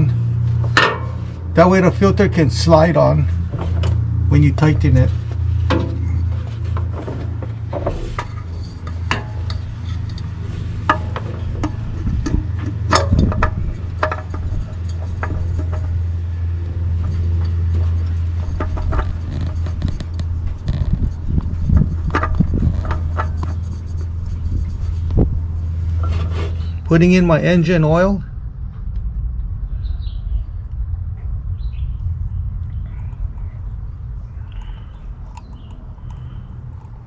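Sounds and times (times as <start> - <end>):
steady low hum: 0.0 - 37.0
clicks knocks and scrapes of tools: 5.6 - 16.1, 17.0 - 25.2.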